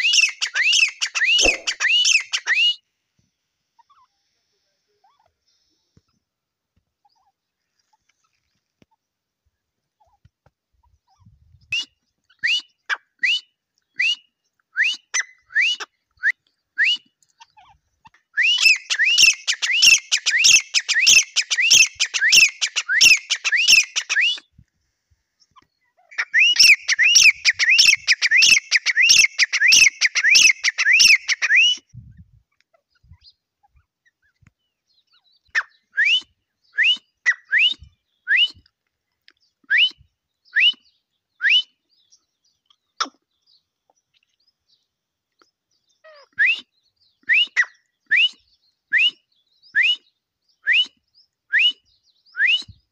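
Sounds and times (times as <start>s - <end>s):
francolin calling: 0.0s - 2.7s, 18.4s - 24.4s.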